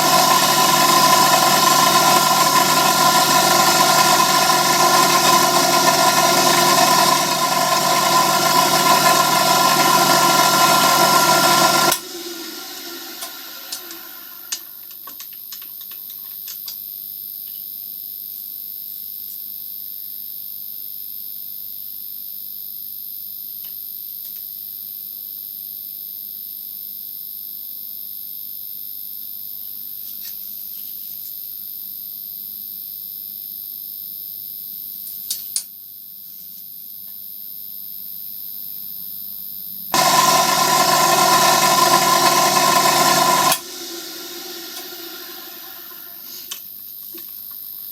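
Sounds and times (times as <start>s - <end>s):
machine tool running loudly: 0.0s - 14.7s, 40.0s - 46.5s.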